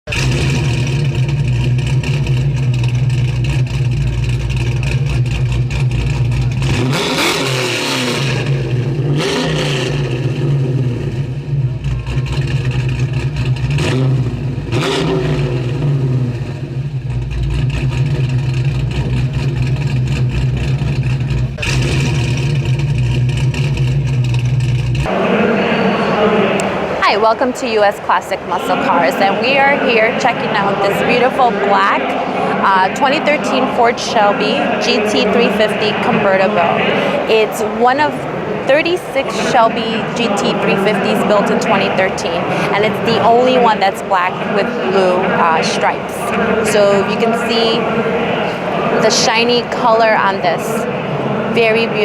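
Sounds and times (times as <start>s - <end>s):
car engine idling and revving: 0.0s - 25.4s, 28.0s - 52.0s.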